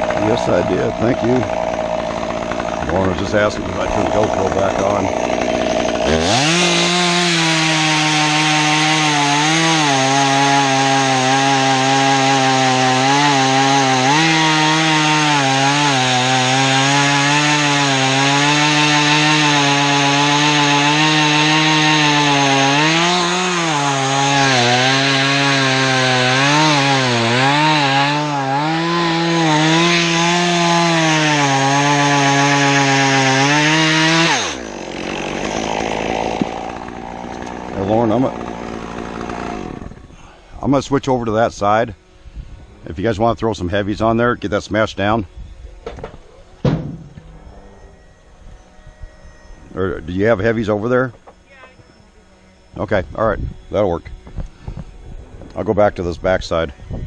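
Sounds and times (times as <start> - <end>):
chainsaw cutting wood: 0.0 - 41.8, 45.9 - 47.4.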